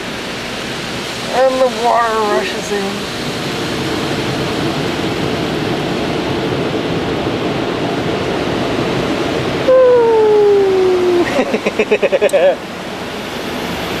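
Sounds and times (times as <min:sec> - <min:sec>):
car wash water jets spraying: 0:00.0 - 0:08.8.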